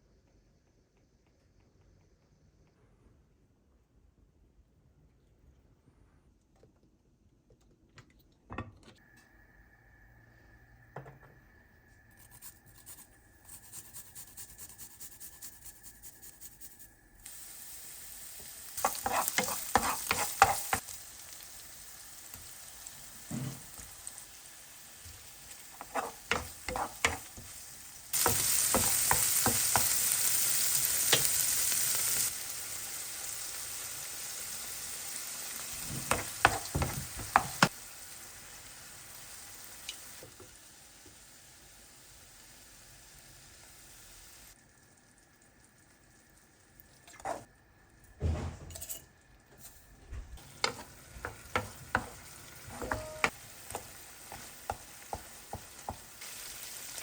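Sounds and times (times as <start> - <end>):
food sizzling in oil: 12.2 - 47.9, 50.4 - 57.0
utensil tapping against pan: 52.8 - 56.0.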